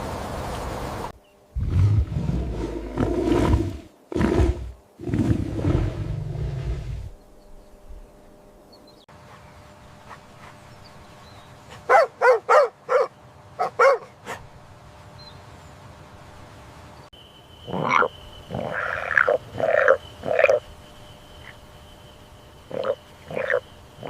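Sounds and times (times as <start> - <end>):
animal calls: 17.7 - 20.6, 22.7 - 23.7.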